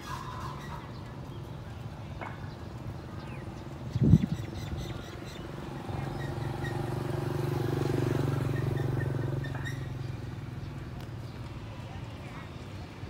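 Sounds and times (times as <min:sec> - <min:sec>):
engine hum: 0:03.6 - 0:13.0.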